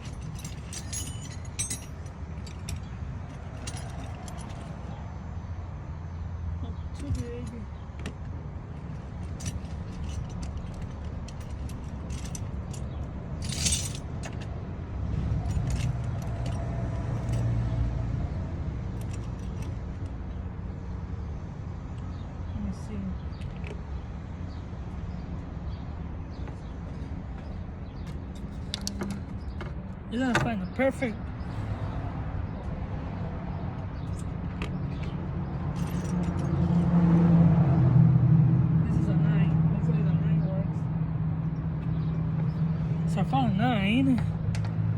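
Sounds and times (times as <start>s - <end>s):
metal tools clinking and rattling: 0.0s - 5.0s, 8.7s - 14.6s, 15.3s - 17.6s, 18.9s - 20.2s, 26.9s - 30.5s, 34.0s - 36.9s
vehicle engine rumble: 0.0s - 44.9s.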